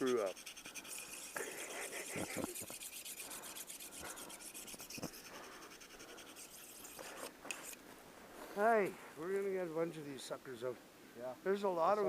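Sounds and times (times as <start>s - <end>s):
knife scraping hide: 0.0s - 5.3s, 6.3s - 7.8s.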